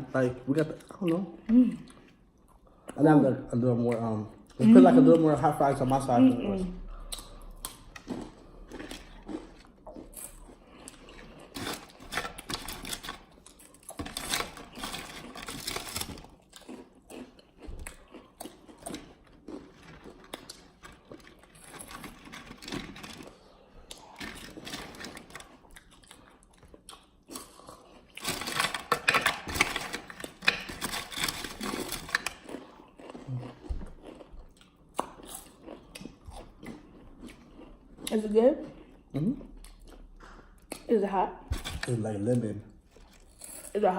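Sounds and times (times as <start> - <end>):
people crunching chips: 6.8 - 38.2, 41.5 - 43.9.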